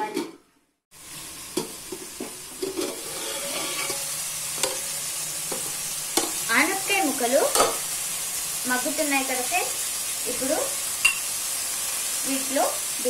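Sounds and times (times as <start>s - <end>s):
food sizzling in oil: 0.9s - 13.0s.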